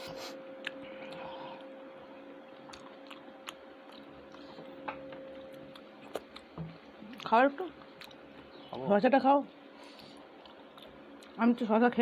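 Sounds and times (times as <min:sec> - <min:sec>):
person chewing: 0:00.0 - 0:01.8, 0:02.4 - 0:08.5, 0:09.8 - 0:11.4
faint steady hum: 0:00.0 - 0:12.0.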